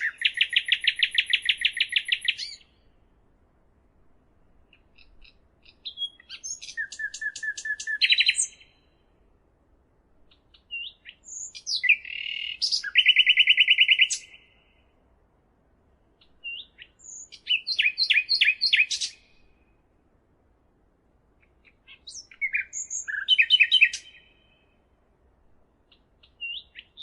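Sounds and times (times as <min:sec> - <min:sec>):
songbird singing with trills: 0:00.0 - 0:03.0, 0:04.6 - 0:09.0, 0:10.2 - 0:14.9, 0:16.2 - 0:19.9, 0:21.4 - 0:24.9, 0:25.9 - 0:27.0.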